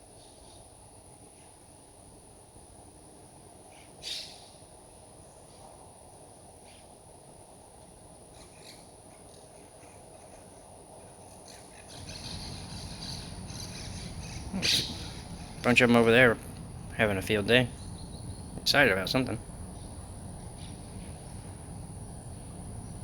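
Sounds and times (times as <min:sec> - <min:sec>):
parakeets squawking: 0:11.9 - 0:19.4
low rumble: 0:12.1 - 0:23.0.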